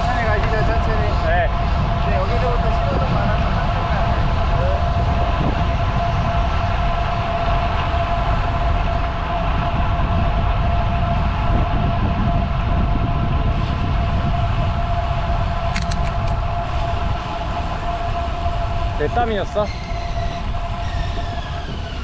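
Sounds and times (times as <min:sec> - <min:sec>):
thin steady whine: 0:00.0 - 0:22.0
wind rumbling on microphone: 0:00.0 - 0:22.0
quick clicks: 0:15.7 - 0:16.4.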